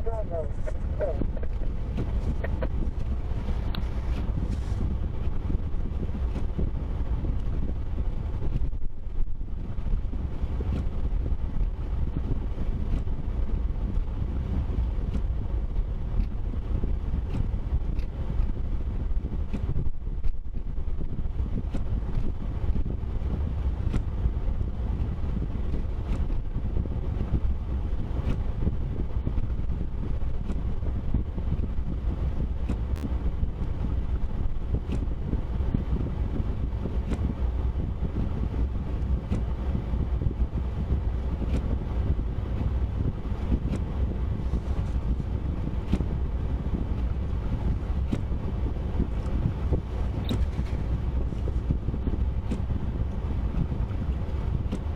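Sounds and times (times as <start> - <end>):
vehicle driving rumble: 0.0 - 8.4, 21.4 - 54.9
wind noise: 0.0 - 54.9.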